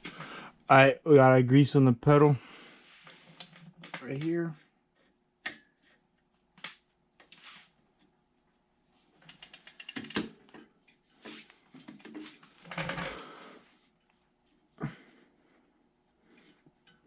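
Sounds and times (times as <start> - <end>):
ratchet-like ticks: 9.3 - 10.2.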